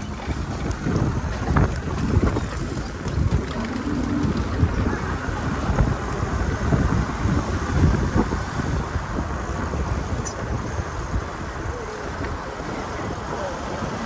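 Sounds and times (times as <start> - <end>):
road noise: 0.0 - 14.0
wind buffeting microphone: 0.0 - 14.0.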